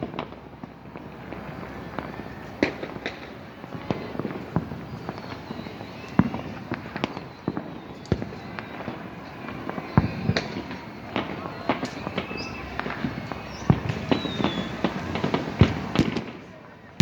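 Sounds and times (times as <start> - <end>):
sharp firework bangs: 0.0 - 16.4
fireworks popping and crackling: 0.0 - 17.0.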